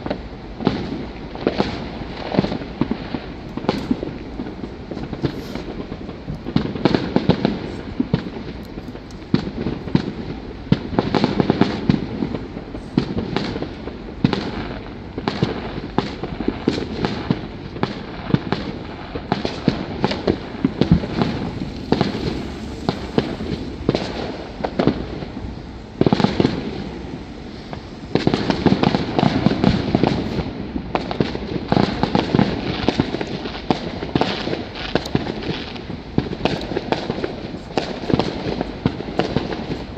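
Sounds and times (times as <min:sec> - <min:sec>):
fireworks barrage: 0:00.0 - 0:39.9.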